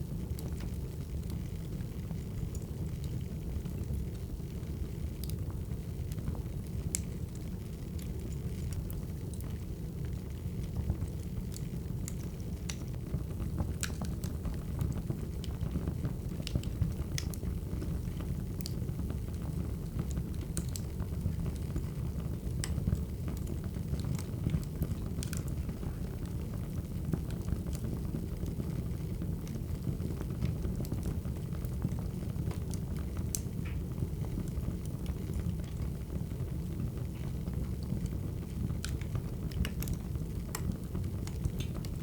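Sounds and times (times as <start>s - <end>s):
wood fire crackling: 0.0s - 42.0s
burning firewood popping: 38.7s - 42.0s.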